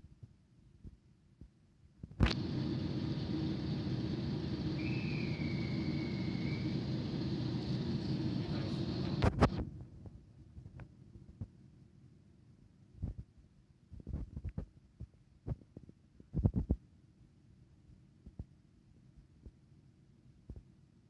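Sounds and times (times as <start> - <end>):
passing train rumble: 2.3 - 9.6
short high squeal: 4.6 - 7.4.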